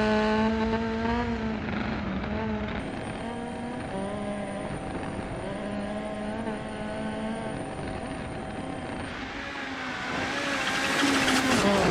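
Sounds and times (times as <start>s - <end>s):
rally car engine: 0.0s - 11.9s
tyre and road noise: 8.2s - 11.9s.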